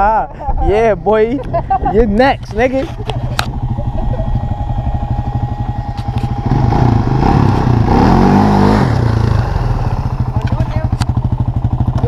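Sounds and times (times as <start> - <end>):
off-road vehicle engine revving: 2.4 - 12.0.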